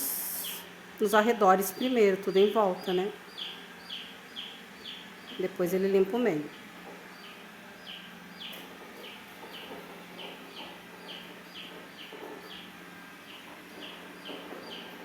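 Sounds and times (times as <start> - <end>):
bird chirping: 2.3 - 5.5, 6.3 - 15.0.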